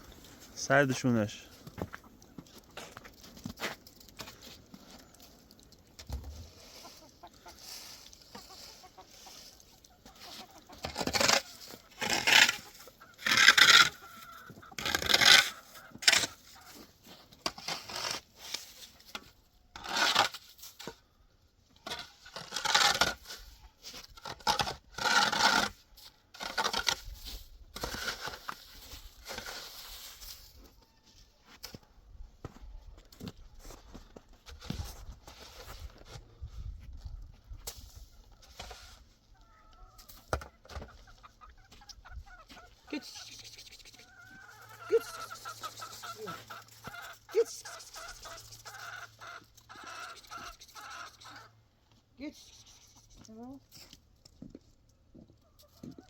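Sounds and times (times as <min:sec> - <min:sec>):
chickens calling: 0:04.9 - 0:17.2, 0:38.1 - 0:52.0.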